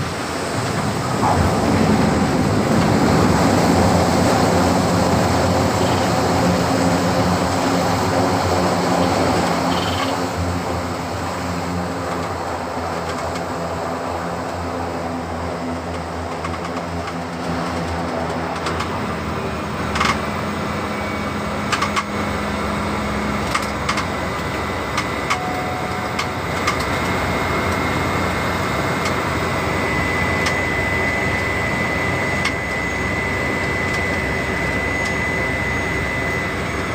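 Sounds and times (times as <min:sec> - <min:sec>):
thin high whine: 0:00.0 - 0:16.1, 0:19.0 - 0:36.9
aircraft engine and propeller noise: 0:00.0 - 0:36.9.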